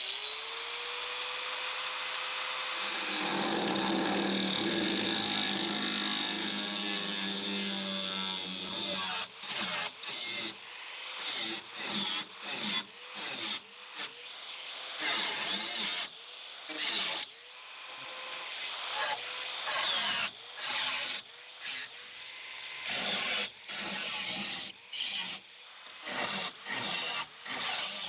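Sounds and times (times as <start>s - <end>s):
power tool cutting sheet metal: 0.0s - 28.0s
rhythmic scraping on metal: 2.8s - 7.8s.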